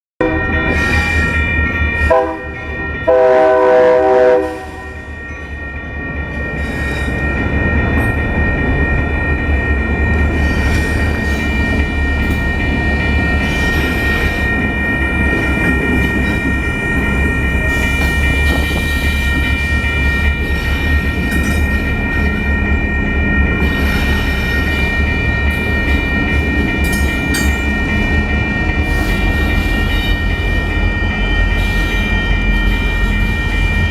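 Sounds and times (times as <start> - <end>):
train horn blasts: 0.2 - 0.6, 2.1 - 5.1
train rumble: 0.2 - 33.9
train wheel clatter: 10.1 - 22.6, 23.5 - 33.9.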